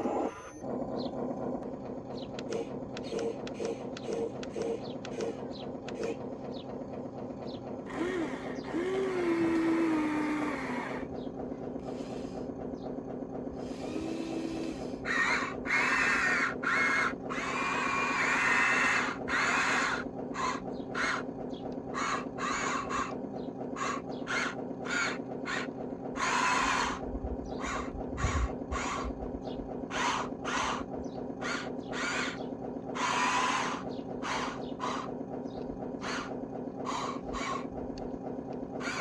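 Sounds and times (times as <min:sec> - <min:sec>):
small electric motors whirring: 0:07.9 - 0:11.1, 0:11.8 - 0:12.5, 0:13.6 - 0:21.3, 0:21.9 - 0:23.2, 0:23.8 - 0:29.2, 0:29.9 - 0:35.1, 0:36.0 - 0:39.0.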